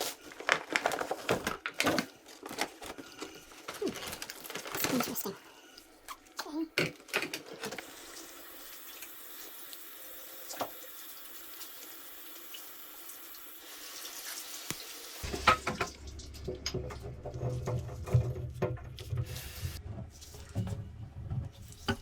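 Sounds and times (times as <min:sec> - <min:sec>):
water running from a tap: 0:07.7 - 0:20.5.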